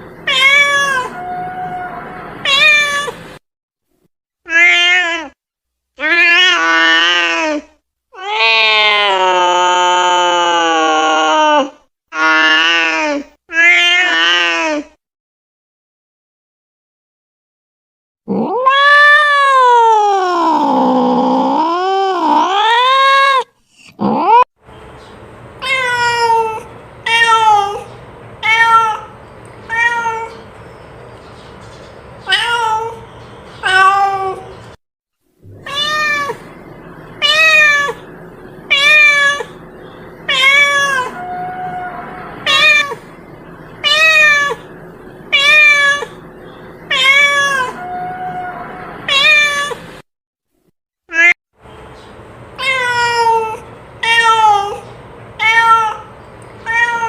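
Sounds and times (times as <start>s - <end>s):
cat meowing: 0.3s - 3.2s, 4.5s - 5.4s, 8.2s - 12.9s, 13.5s - 14.8s, 18.3s - 24.4s, 25.6s - 30.4s, 32.2s - 33.0s, 33.6s - 34.5s, 35.5s - 36.6s, 37.2s - 38.1s, 38.7s - 39.6s, 40.3s - 43.1s, 43.8s - 44.7s, 45.3s - 46.2s, 46.9s - 49.8s, 52.6s - 57.0s.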